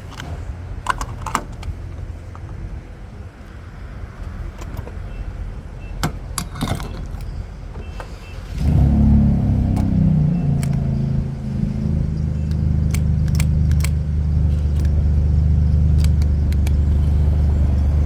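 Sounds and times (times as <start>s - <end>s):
car engine and road rumble: 0.0s - 18.0s
sharp clicks: 8.0s - 18.0s
loud engine note: 8.5s - 18.0s.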